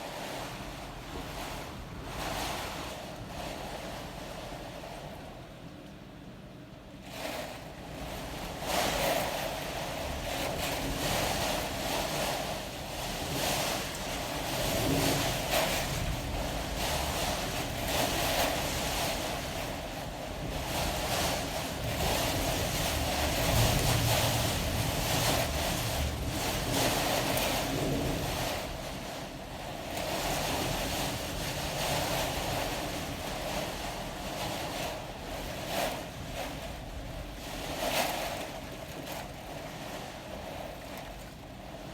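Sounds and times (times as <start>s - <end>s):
gusting wind: 0.0s - 5.6s, 7.0s - 41.9s
wind buffeting microphone: 7.8s - 41.9s.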